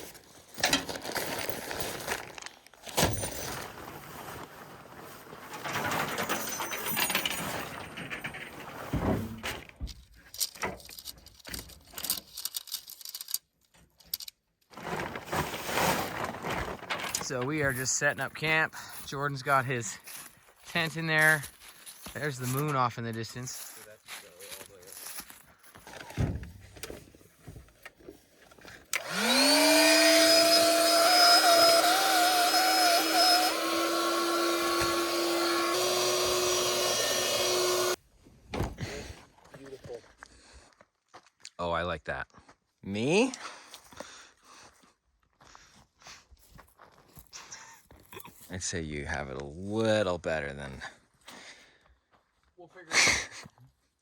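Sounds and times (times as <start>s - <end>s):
rustling: 0.2s - 7.8s, 14.7s - 18.0s
electric air pump motor: 29.0s - 38.0s.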